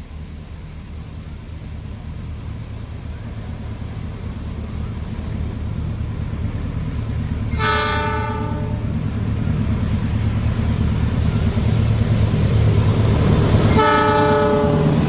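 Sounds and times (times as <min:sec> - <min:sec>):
diesel locomotive rumbling: 0:00.0 - 0:15.0
train horn blast: 0:07.5 - 0:09.0, 0:13.6 - 0:15.0.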